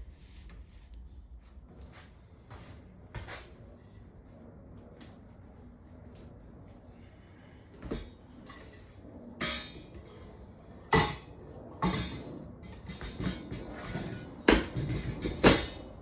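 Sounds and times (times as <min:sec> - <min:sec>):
tools and bicycle parts clunking: 0:07.8 - 0:10.2, 0:10.9 - 0:15.9.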